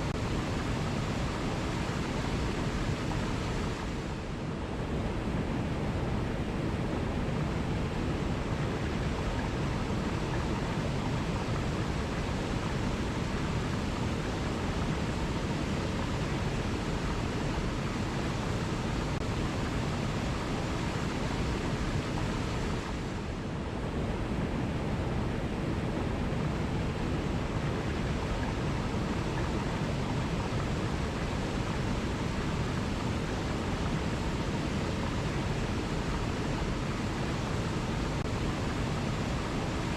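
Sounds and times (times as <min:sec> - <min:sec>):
waterfall roaring: 0:23.9 - 0:39.9.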